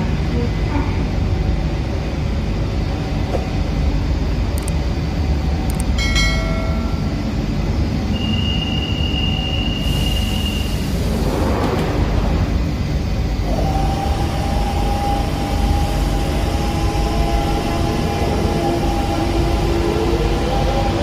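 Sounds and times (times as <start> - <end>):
train rumbling: 0.0 - 21.0
high squeal: 8.1 - 11.0.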